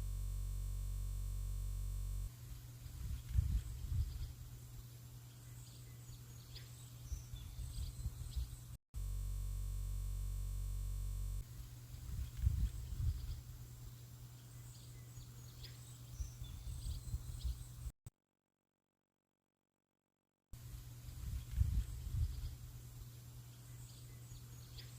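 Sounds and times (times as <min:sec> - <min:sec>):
steady even buzz: 0:00.0 - 0:02.3, 0:09.0 - 0:17.9
low outdoor rumble: 0:00.0 - 0:04.8, 0:07.5 - 0:17.9
birds chirping faintly: 0:11.4 - 0:18.0.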